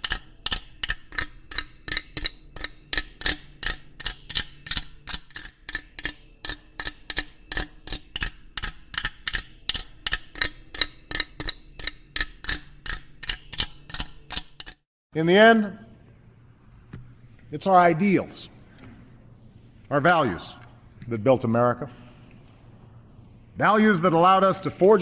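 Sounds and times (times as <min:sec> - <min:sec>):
sharp metallic clicking: 0:00.0 - 0:14.8
faint low hum: 0:15.5 - 0:25.0.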